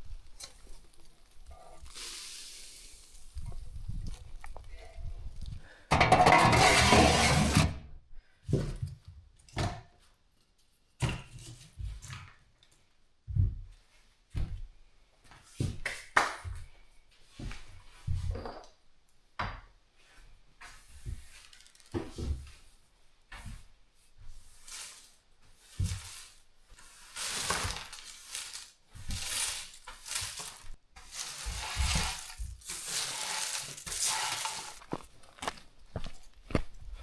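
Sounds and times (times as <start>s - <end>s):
hissing rustling noise: 29.6s - 34.8s.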